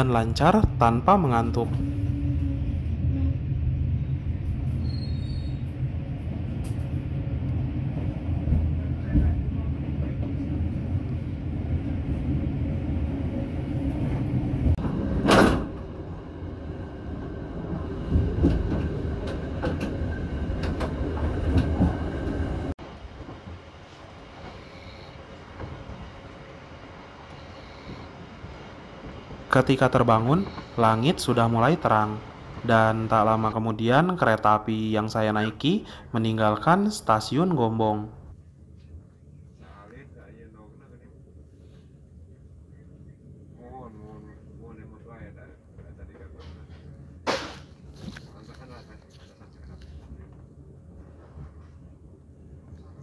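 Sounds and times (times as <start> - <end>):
train wheels rumbling on track: 0.0 - 36.8.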